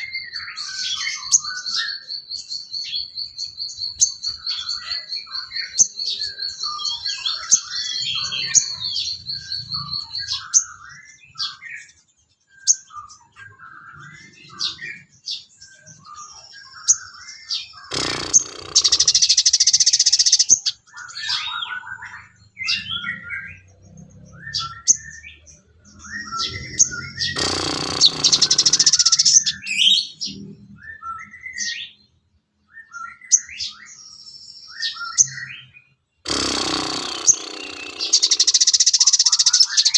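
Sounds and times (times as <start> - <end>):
sunbird trilling and chirping: 0.0 - 32.2, 32.8 - 39.9
harsh buzzing burst: 17.9 - 19.6, 27.2 - 29.5, 36.2 - 39.8.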